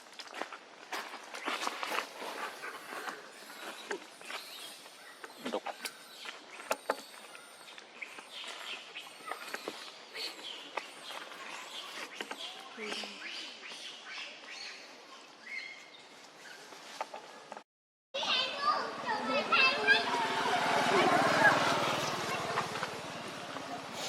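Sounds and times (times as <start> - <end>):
rustles: 0.0 - 13.8, 14.5 - 17.6
high chirps and squeaks: 1.4 - 14.7.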